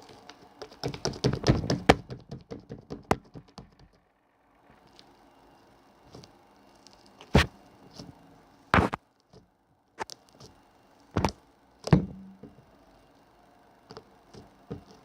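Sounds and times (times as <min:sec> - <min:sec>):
sharp knocks: 0:11.9 - 0:12.5.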